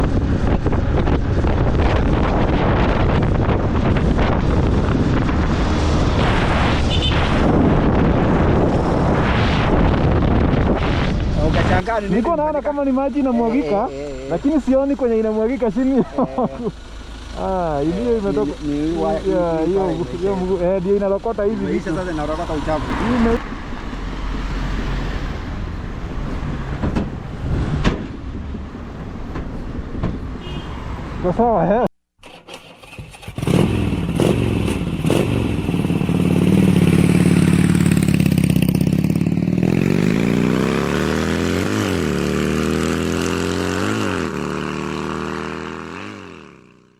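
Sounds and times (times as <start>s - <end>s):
strong wind buffeting microphone: 0.0s - 11.8s, 22.6s - 30.4s
rumble of road vehicles: 0.0s - 46.9s.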